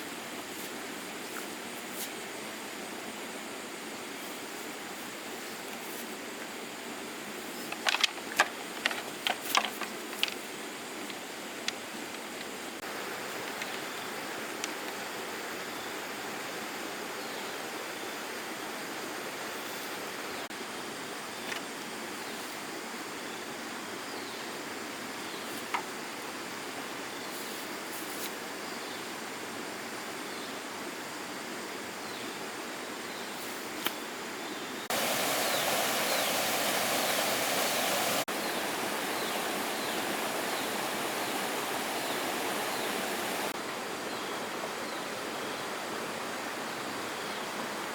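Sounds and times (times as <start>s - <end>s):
flowing water rushing: 34.9s - 47.9s.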